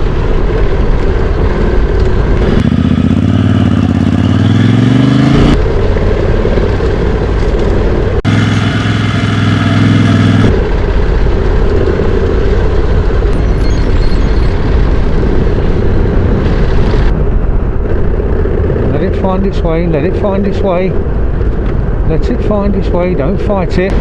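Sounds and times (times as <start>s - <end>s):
steady rushing noise: 0.0s - 24.0s
motorcycle engine revving: 0.5s - 17.2s.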